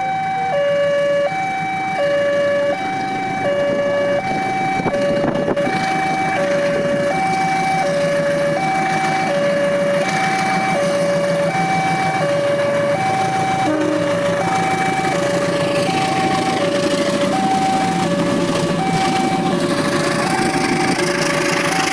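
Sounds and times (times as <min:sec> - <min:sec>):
level crossing two-tone alarm: 0:00.0 - 0:21.0
rumble of noise: 0:01.3 - 0:21.9.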